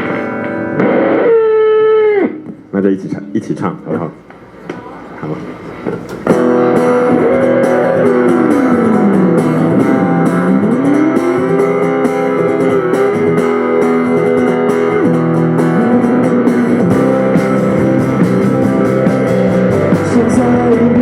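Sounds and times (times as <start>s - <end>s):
electric guitar sliding note: 0.0s - 2.5s, 6.3s - 21.0s
rock band music: 0.0s - 2.6s, 6.2s - 21.0s.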